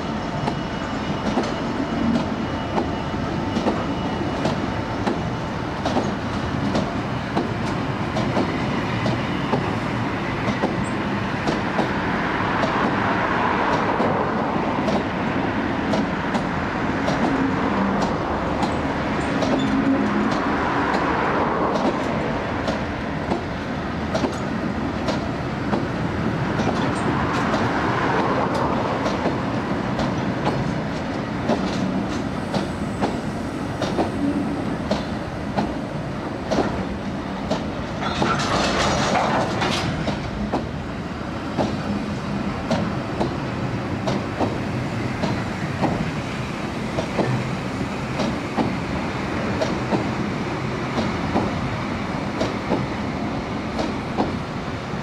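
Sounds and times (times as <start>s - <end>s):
wheels clicking over rail joints: 36.4s - 40.8s.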